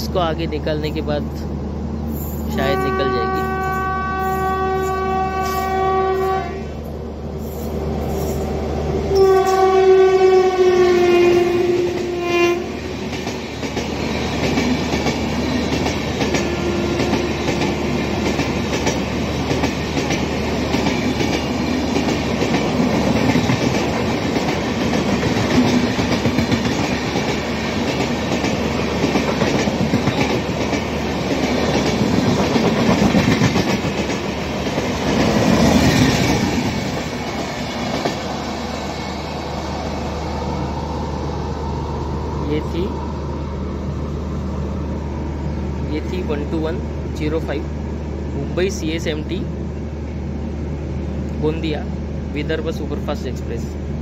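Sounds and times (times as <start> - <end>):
train wheels rumbling on rails: 0.0 - 54.0
train horn: 2.6 - 6.7, 9.1 - 12.8, 16.4 - 17.9.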